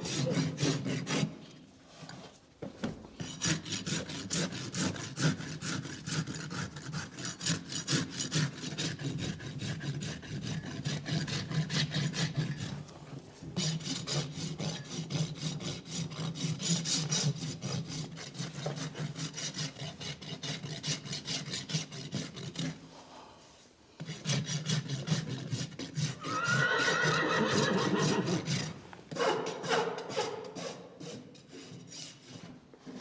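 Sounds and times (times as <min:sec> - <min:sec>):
rasp filing a hoof: 0:00.0 - 0:02.4, 0:03.1 - 0:33.0
horse whinnying: 0:26.1 - 0:28.6.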